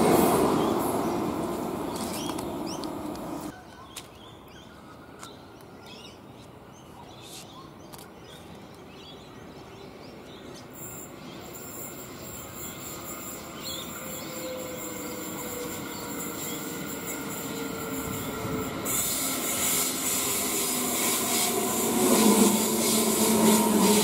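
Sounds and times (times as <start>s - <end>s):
electric train rumble: 0.0s - 3.5s, 10.4s - 24.0s
high-pitched train whine: 0.0s - 3.5s, 10.6s - 24.0s
birds chirping: 0.4s - 19.6s.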